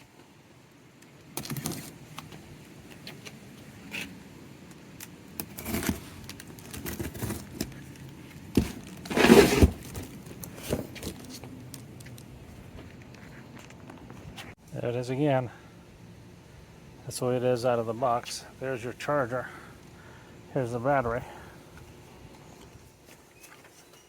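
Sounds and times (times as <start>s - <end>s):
packaging rustling and clattering: 5.4s - 12.3s.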